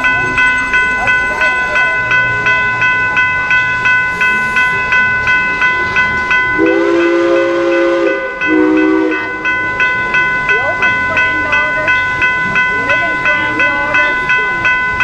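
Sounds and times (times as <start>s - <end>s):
railroad crossing bell ringing: 0.0s - 15.0s
locomotive air horn: 6.6s - 9.3s.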